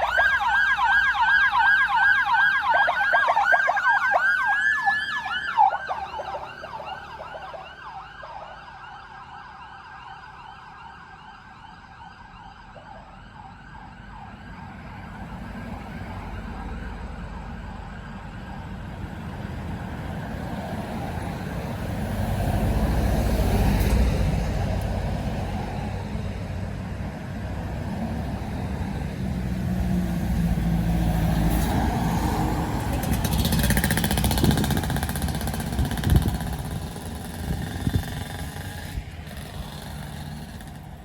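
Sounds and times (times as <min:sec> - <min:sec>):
bus passing on wet road: 0:14.2 - 0:41.0.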